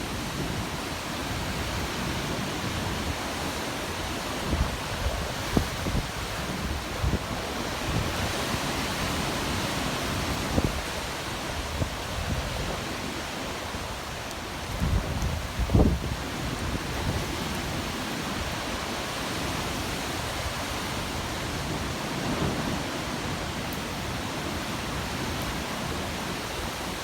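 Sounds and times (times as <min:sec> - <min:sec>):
wind buffeting microphone: 0:00.0 - 0:18.9
wind and rain rushing: 0:00.0 - 0:27.0.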